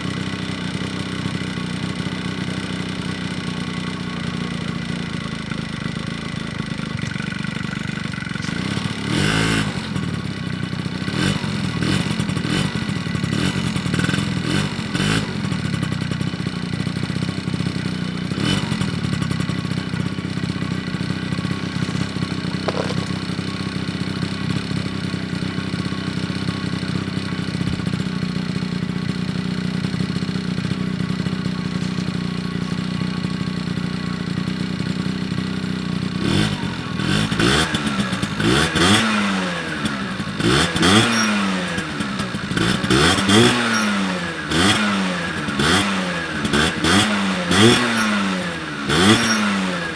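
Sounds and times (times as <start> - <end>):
scooter engine running: 0.0 - 49.9
sharp engine bursts: 36.2 - 49.9.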